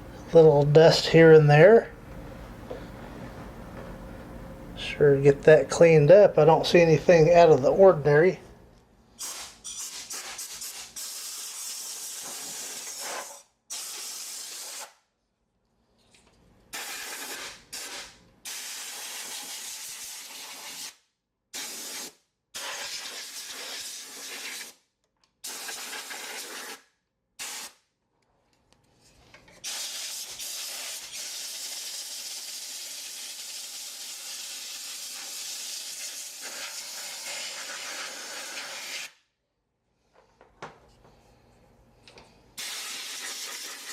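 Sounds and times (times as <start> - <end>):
compressed air blow gun hissing: 9.2 - 14.9, 16.8 - 20.8, 29.6 - 38.9.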